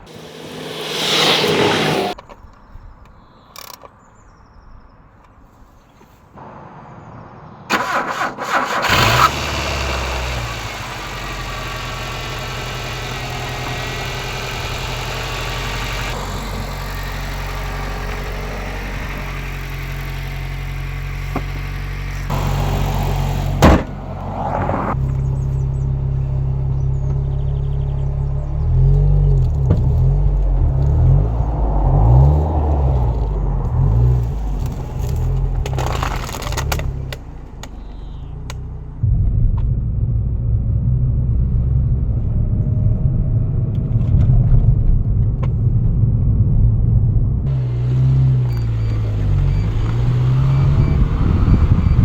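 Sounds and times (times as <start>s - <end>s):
burst of noise: 0.0s - 2.2s
car engine starter cranking: 7.7s - 16.2s
car engine idling: 8.9s - 31.6s, 47.5s - 52.0s.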